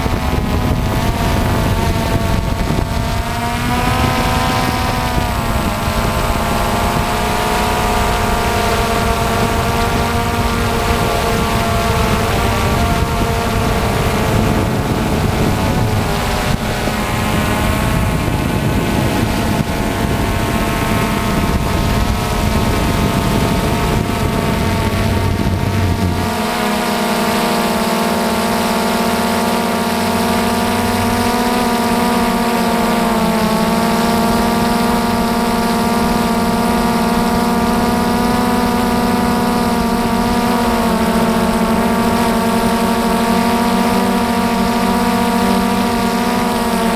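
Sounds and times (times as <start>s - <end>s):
drone propellers humming: 0.0s - 46.9s
low rumble: 13.7s - 26.5s.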